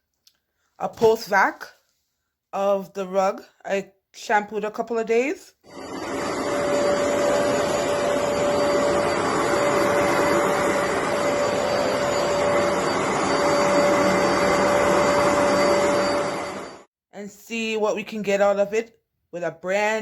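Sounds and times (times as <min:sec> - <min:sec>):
vacuum cleaner running: 0:05.7 - 0:16.9.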